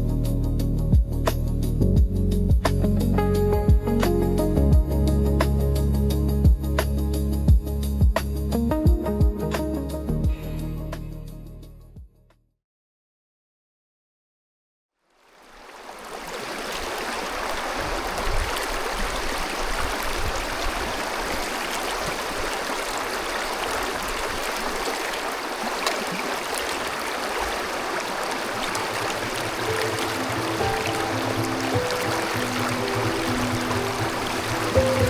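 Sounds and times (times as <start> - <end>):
stream water rushing: 15.2 - 35.0.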